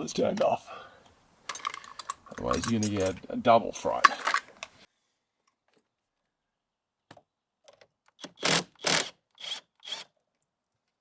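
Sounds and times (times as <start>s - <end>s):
tools knocking and clicking: 1.5s - 3.2s.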